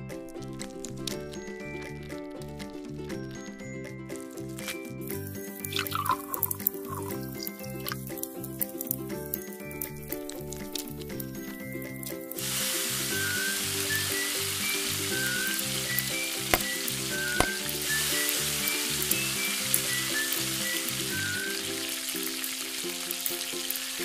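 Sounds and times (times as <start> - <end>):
background music: 0.0 - 24.0
patty sizzling in hot oil: 4.2 - 9.9, 10.8 - 24.0.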